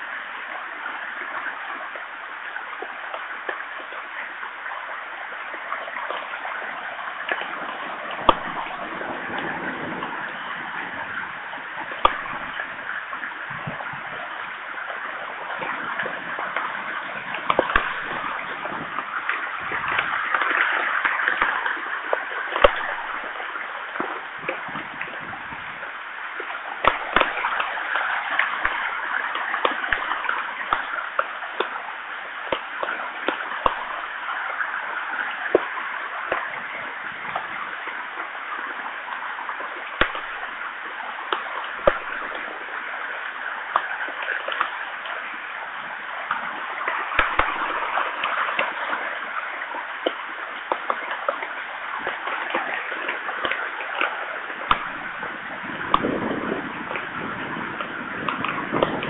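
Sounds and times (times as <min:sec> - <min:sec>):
heavy rain hissing: 0:00.0 - 0:59.0
raindrops tapping close by: 0:00.0 - 0:59.0.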